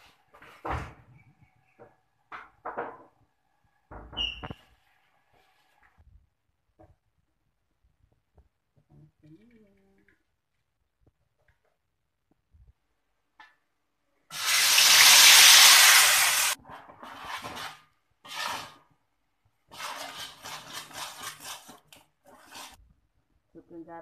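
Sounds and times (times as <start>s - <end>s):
chilli paste sizzling in hot oil: 14.3s - 18.8s, 19.6s - 22.8s
spatula stirring and scraping: 16.5s - 23.0s.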